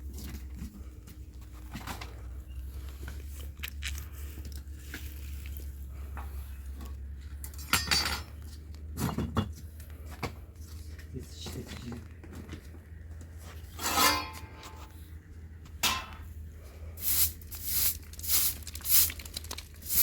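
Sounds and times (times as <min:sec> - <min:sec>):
objects clattering: 0:06.0 - 0:10.4, 0:11.8 - 0:14.9, 0:15.7 - 0:16.3, 0:17.0 - 0:20.0.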